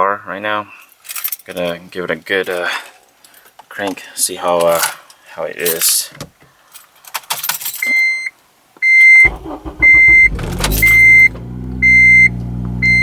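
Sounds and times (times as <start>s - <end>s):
dashboard warning chime beeping: 7.8s - 13.0s
car engine cranking and idling: 9.2s - 13.0s.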